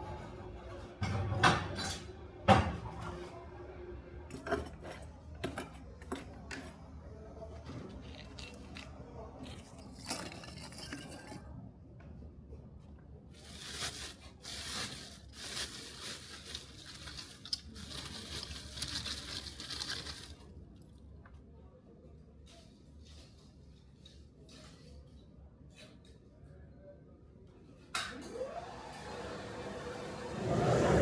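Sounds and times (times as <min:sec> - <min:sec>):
scraping and rubbing: 0:09.5 - 0:11.4, 0:13.4 - 0:20.5.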